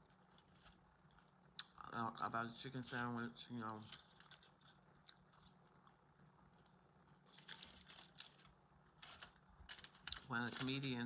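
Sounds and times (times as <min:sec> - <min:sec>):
low room hum: 0:00.0 - 0:11.0
chewing and crunching: 0:04.0 - 0:10.4.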